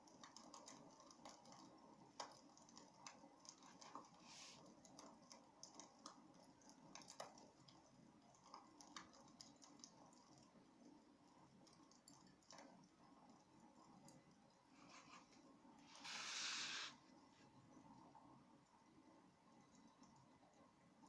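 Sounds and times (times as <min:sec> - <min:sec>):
wood fire crackling: 0:00.0 - 0:10.5
soft low hiss: 0:01.5 - 0:21.0.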